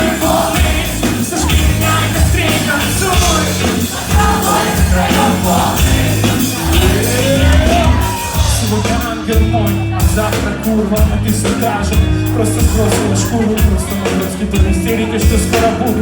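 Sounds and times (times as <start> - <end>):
heavy pulsing bass: 0.0 - 16.0
live band playing: 0.0 - 16.0.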